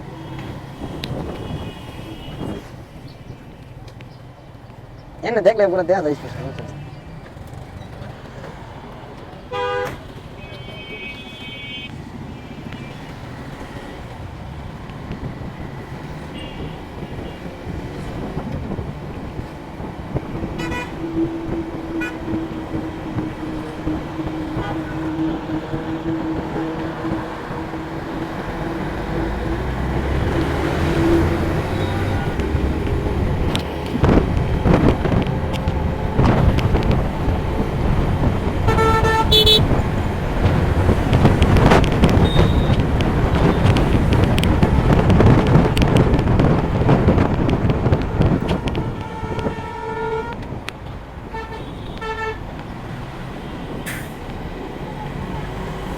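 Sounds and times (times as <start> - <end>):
vehicle horns honking: 0.0 - 2.8, 9.5 - 13.1, 16.0 - 17.5, 20.4 - 28.1, 29.6 - 37.1, 38.0 - 44.2, 47.6 - 52.5
wind buffeting microphone: 0.0 - 3.6, 12.0 - 55.9
road traffic: 0.0 - 55.9.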